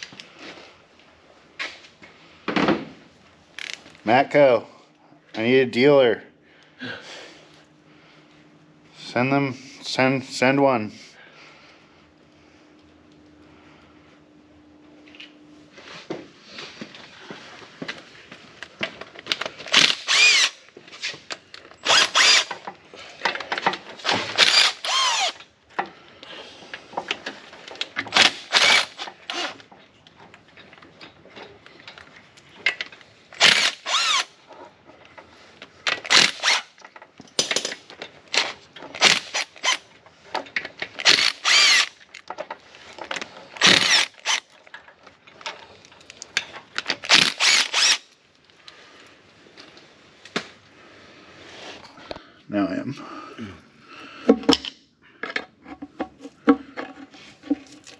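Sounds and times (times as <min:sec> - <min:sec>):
impact wrench whirring: 0:03.6 - 0:03.8, 0:19.6 - 0:20.7, 0:21.8 - 0:22.7, 0:24.0 - 0:25.5, 0:28.0 - 0:29.7, 0:33.4 - 0:34.4, 0:35.9 - 0:36.8, 0:38.4 - 0:39.9, 0:40.9 - 0:42.2, 0:43.6 - 0:44.6, 0:47.0 - 0:48.2.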